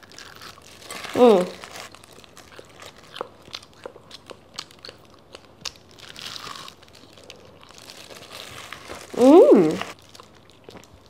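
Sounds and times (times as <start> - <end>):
plastic glove crinkling: 0.0 - 3.5, 6.7 - 10.4
wet chewing: 0.0 - 11.0.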